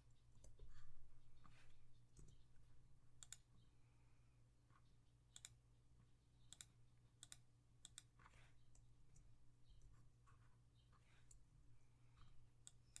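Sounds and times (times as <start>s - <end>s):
computer mouse clicks: 3.2s - 3.5s, 5.3s - 5.6s, 6.5s - 9.3s, 12.6s - 13.0s.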